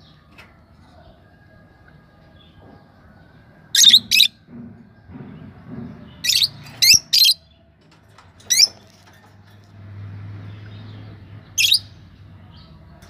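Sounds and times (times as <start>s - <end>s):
lovebirds chirping: 3.8s - 4.3s.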